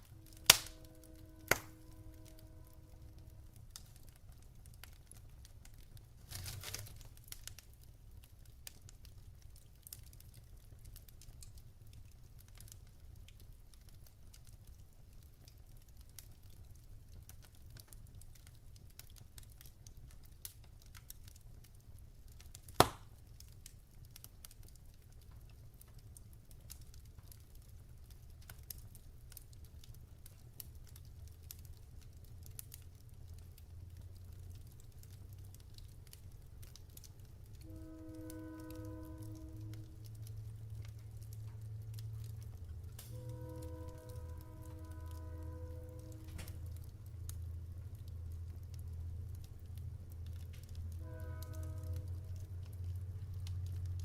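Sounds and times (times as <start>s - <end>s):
low steady rumble: 0.0s - 54.0s
wood fire crackling: 0.0s - 54.0s
loud sharp fire pop: 0.4s - 0.8s, 1.5s - 1.8s, 22.8s - 23.1s.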